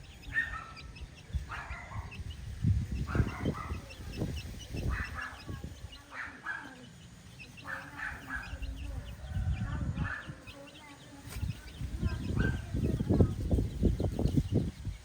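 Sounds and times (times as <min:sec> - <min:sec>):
chickens calling: 0:00.0 - 0:15.0
chicks peeping: 0:00.0 - 0:15.0.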